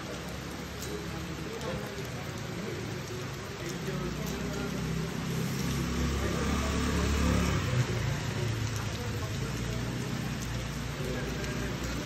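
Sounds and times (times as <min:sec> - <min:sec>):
rain hissing on wet pavement: 0:00.0 - 0:12.0
vehicle engine hum passing: 0:04.6 - 0:09.0.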